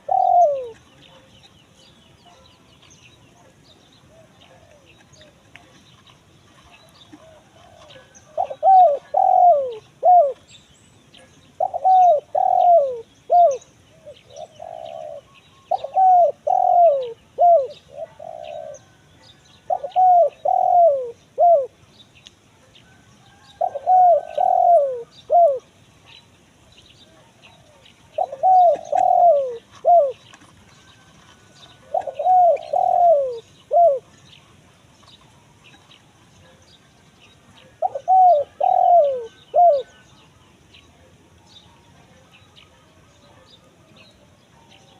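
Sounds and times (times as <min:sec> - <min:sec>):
dove cooing: 0:00.0 - 0:01.4, 0:03.3 - 0:05.7, 0:06.5 - 0:10.5, 0:11.2 - 0:21.8, 0:22.9 - 0:25.8, 0:27.1 - 0:36.7, 0:37.5 - 0:40.1.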